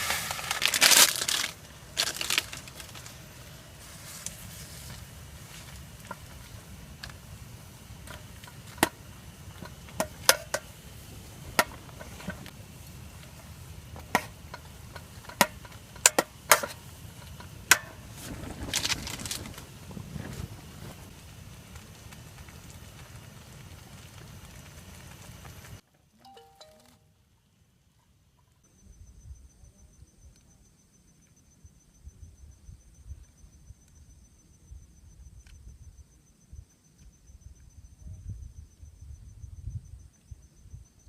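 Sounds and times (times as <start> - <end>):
sharp fire pops: 0.0 - 25.8
campfire crackling: 0.0 - 26.8
low hiss: 0.0 - 28.0.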